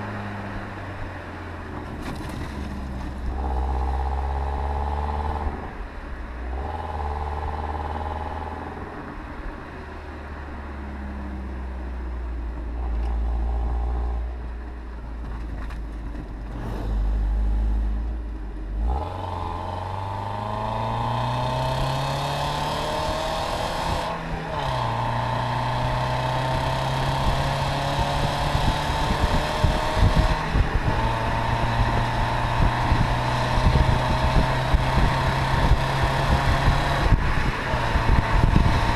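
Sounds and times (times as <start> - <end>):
car engine accelerating: 0.0 - 38.9
low buffeting: 12.3 - 18.9.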